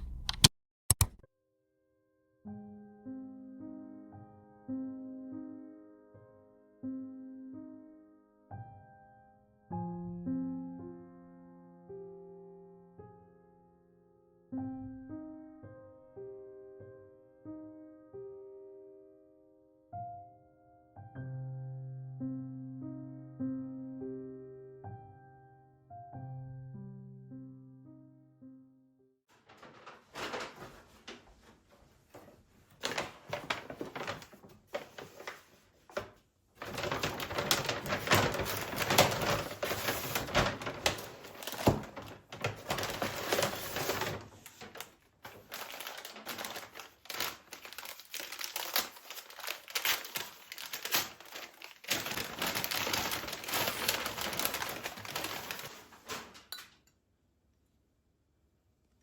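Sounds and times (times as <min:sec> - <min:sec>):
rapid clicking and rustling: 0:29.3 - 0:31.5, 0:32.1 - 0:56.5.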